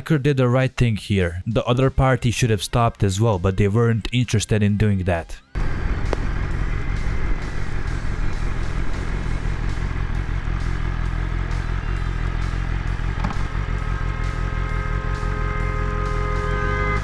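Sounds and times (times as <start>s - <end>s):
motorcycle engine running: 5.6s - 17.0s
road and wind noise: 5.6s - 17.0s.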